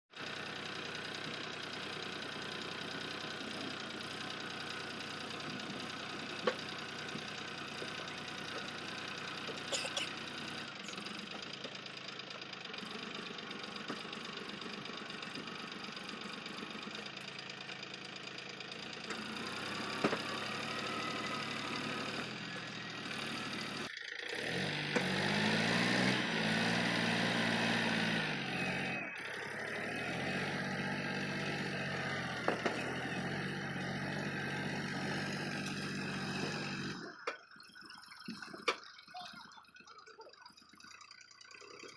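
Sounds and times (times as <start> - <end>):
tractor diesel engine revving: 0.1 - 41.9.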